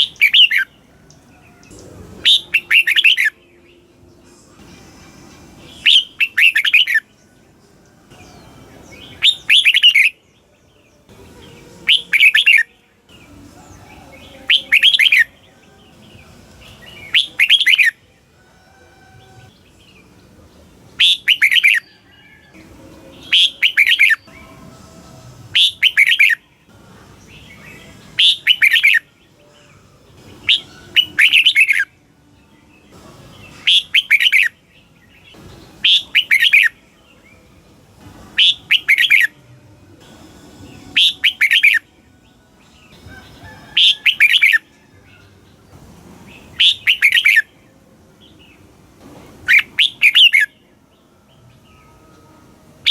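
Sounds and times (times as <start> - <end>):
bird singing warbled phrases: 0.0 - 4.7, 5.6 - 18.3, 19.2 - 24.8, 25.5 - 37.6, 38.3 - 39.4, 40.6 - 48.8, 49.4 - 52.9.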